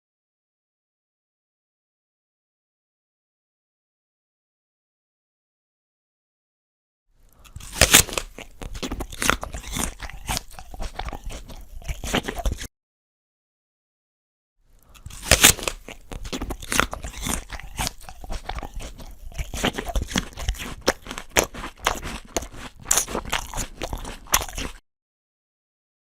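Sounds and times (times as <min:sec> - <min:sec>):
biting crisp apple crunches: 0:07.2 - 0:12.7, 0:14.8 - 0:24.8
crackling chewing: 0:07.2 - 0:12.7, 0:14.8 - 0:24.8.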